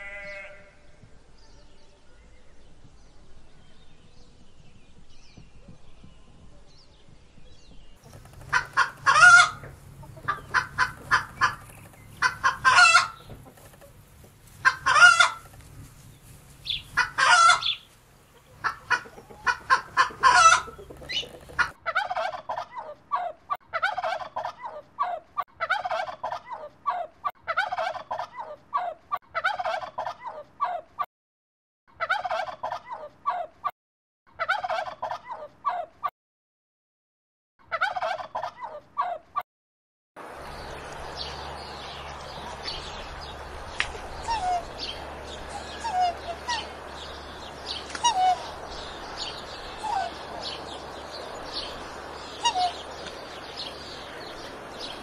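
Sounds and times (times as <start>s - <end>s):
rooster and hens calling: 0.0s - 1.0s, 8.0s - 31.0s, 32.0s - 33.7s, 34.3s - 36.1s, 37.6s - 39.4s, 40.2s - 55.0s
hens clucking: 8.0s - 30.8s, 37.7s - 39.2s, 40.4s - 55.0s
turkey gobbling: 8.1s - 15.6s, 16.6s - 30.8s, 32.0s - 33.5s, 34.4s - 35.9s, 37.7s - 39.2s, 42.5s - 50.8s, 51.5s - 54.9s.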